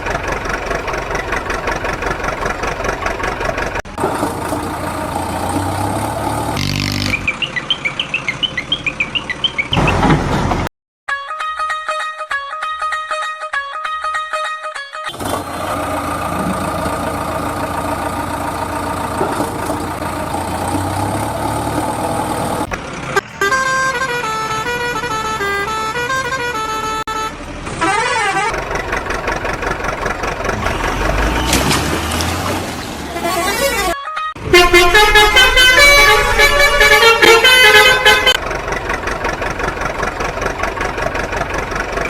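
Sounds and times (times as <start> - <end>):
electronic horn chord: 34.4 - 38.4.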